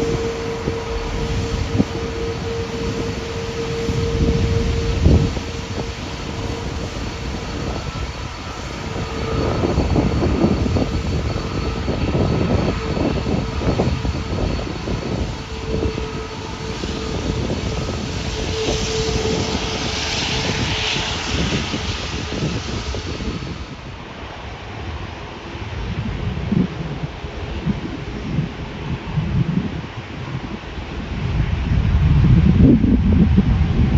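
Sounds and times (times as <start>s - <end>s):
jet engines rumbling and crackling: 0.0s - 33.9s.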